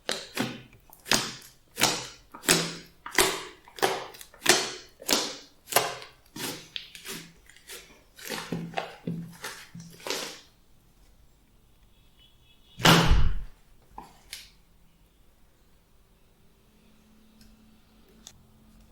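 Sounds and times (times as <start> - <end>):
slime squelching: 0.0 - 10.6, 12.8 - 14.6.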